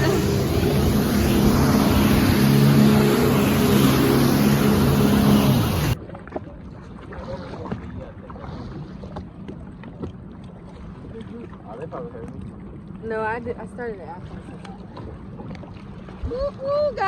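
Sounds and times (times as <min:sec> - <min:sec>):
wind and spray: 0:00.0 - 0:06.1
faint water noise: 0:00.0 - 0:17.0
watercraft engine humming: 0:00.0 - 0:17.0.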